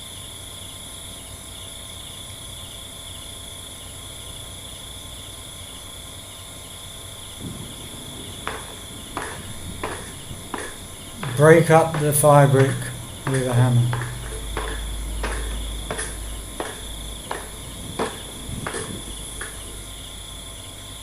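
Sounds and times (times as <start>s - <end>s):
crickets chirping: 0.0s - 21.0s
short knocks or scrapes: 8.4s - 19.9s.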